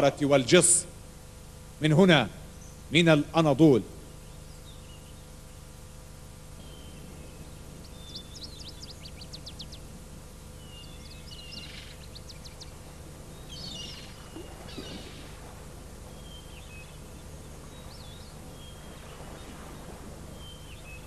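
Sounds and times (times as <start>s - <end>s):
steady low hum: 0.0s - 21.0s
small birds chirping: 4.1s - 5.7s, 6.4s - 15.4s, 16.0s - 19.8s.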